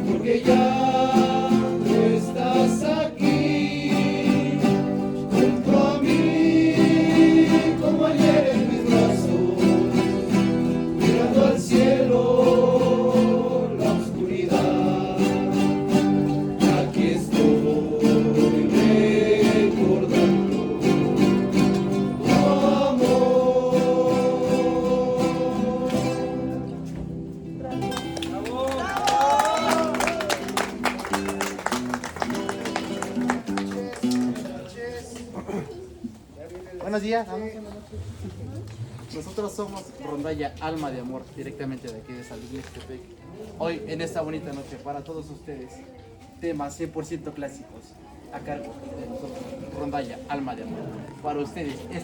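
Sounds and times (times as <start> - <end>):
voices singing in harmony: 0.0 - 27.0
strummed guitars: 0.0 - 28.9, 29.6 - 34.6.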